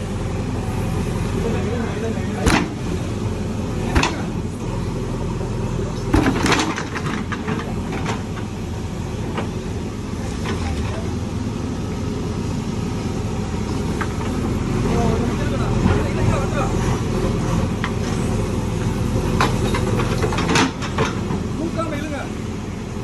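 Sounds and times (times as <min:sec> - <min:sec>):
diesel engine running: 0:00.0 - 0:23.0
sharp knocks: 0:02.4 - 0:02.8.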